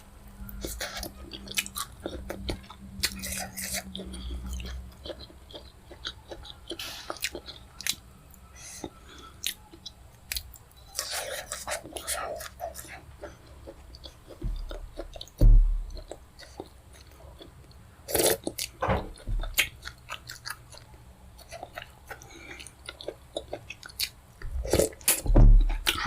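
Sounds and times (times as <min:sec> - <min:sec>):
close chewing with mouth clicks: 0:00.3 - 0:26.0
low thump: 0:15.4 - 0:15.9, 0:18.8 - 0:19.5, 0:25.3 - 0:25.8.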